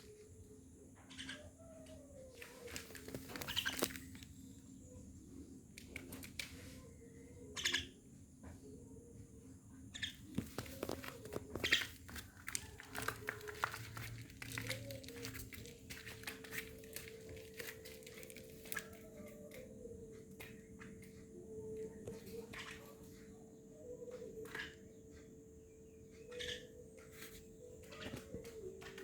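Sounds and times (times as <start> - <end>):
faint steady hum: 0.0 - 29.0
bird clicks and rustling: 2.4 - 4.3, 10.3 - 19.6.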